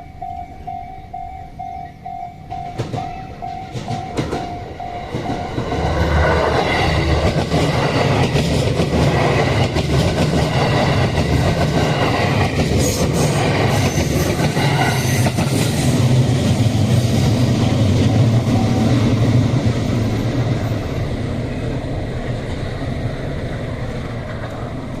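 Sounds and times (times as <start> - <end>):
electric train running hum: 0.0 - 25.0.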